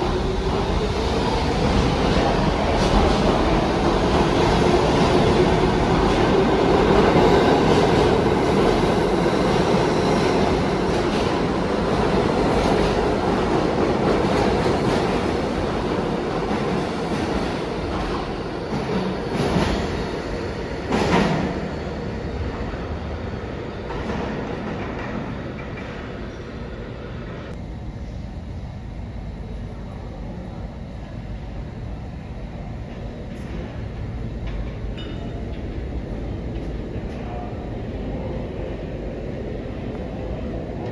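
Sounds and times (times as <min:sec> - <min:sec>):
subway train rumbling: 0:00.0 - 0:40.9.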